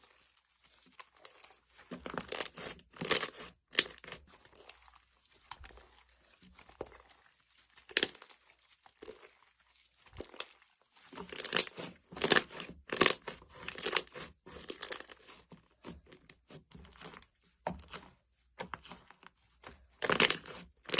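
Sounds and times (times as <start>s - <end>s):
slime squeezed crackling and popping: 0.9s - 9.5s, 11.2s - 15.4s, 20.0s - 20.9s.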